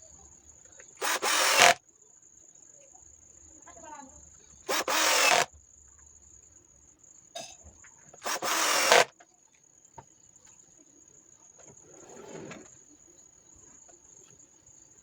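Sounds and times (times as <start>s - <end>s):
saw cutting into wood: 1.0s - 1.8s, 4.7s - 5.5s, 8.2s - 9.1s
table saw blade whining: 1.0s - 1.8s, 4.7s - 5.5s, 8.2s - 9.1s.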